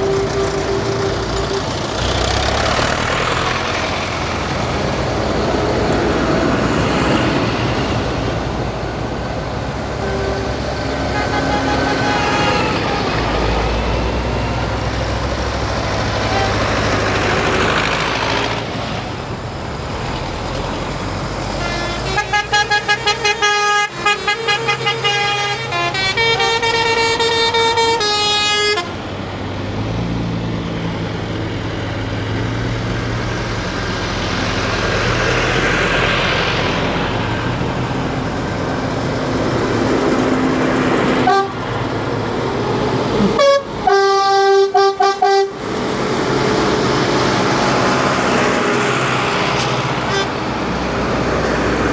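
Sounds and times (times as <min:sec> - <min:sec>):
horn short blasts: 0:00.0 - 0:02.2, 0:10.0 - 0:13.1, 0:43.2 - 0:45.6
tractor engines passing: 0:00.0 - 0:51.9.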